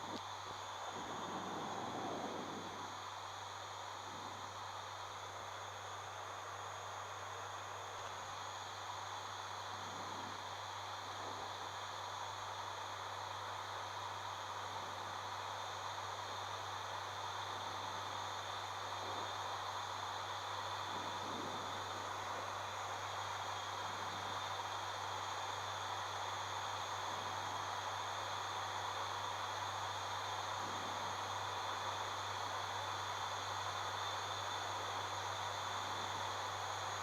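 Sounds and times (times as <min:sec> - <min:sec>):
turboprop engines droning: 0:00.0 - 0:12.3
airflow hiss: 0:00.0 - 0:37.0
faint high whines: 0:00.0 - 0:37.0.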